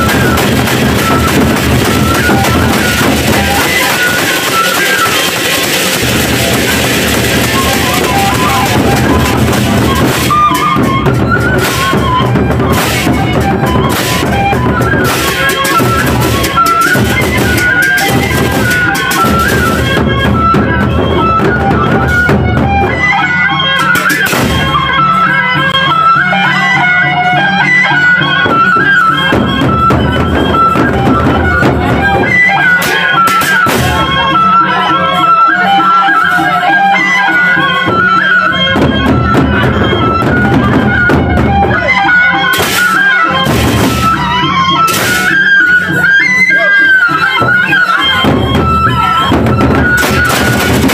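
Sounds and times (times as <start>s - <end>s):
cymbals clashing: 0.0s - 10.9s, 42.5s - 46.0s, 47.5s - 50.9s
held stepping melody line: 0.0s - 25.0s
large drums beating: 0.0s - 25.8s, 28.4s - 34.3s, 38.6s - 46.1s, 47.1s - 50.9s
cymbals: 0.0s - 27.4s, 37.0s - 50.9s
wavering wind instrument melody: 0.0s - 50.9s.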